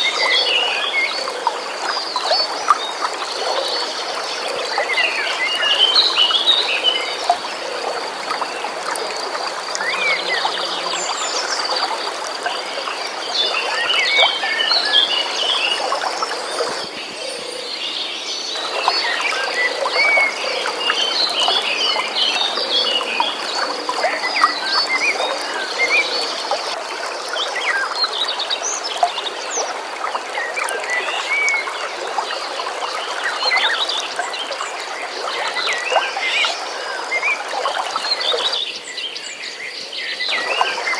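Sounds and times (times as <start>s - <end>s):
flowing water rushing: 0.0s - 40.9s
birds chirping: 9.7s - 26.8s.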